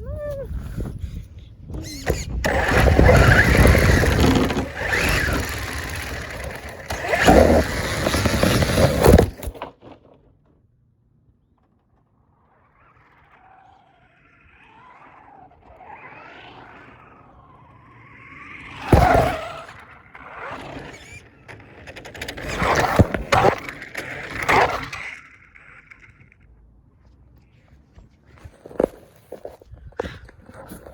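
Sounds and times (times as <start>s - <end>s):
toy car motor whine: 1.8s - 9.6s, 12.2s - 26.4s
scraping and knocking: 2.5s - 9.7s.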